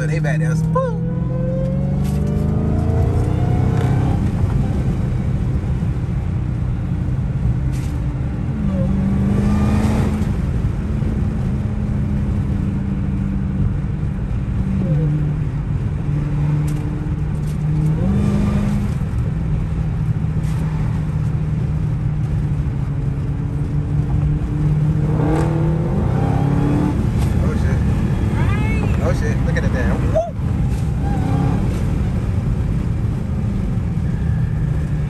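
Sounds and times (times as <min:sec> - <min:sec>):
car engine at highway speed: 0:00.0 - 0:35.0.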